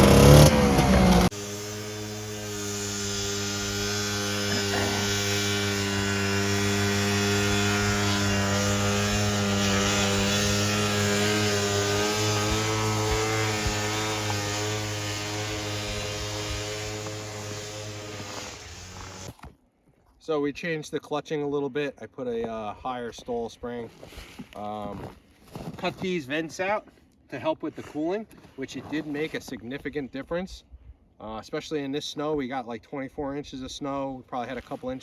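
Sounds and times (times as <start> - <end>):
two-stroke engine at high revs: 0.0 - 19.5.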